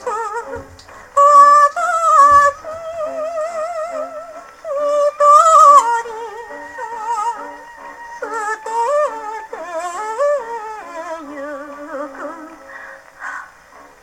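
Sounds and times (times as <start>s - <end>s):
gramophone playing popular song: 0.0s - 12.7s.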